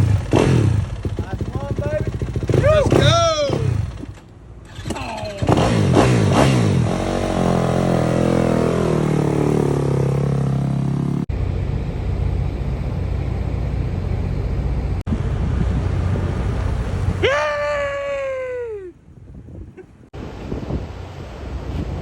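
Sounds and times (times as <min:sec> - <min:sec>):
motocross bikes revving: 0:00.0 - 0:11.3
motorcycle engine passing by: 0:00.0 - 0:17.2.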